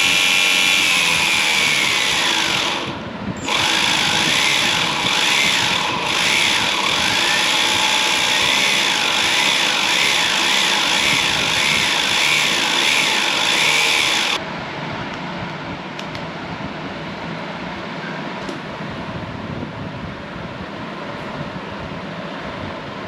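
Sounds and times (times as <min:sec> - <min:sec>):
electric motor whining: 0:00.0 - 0:14.4.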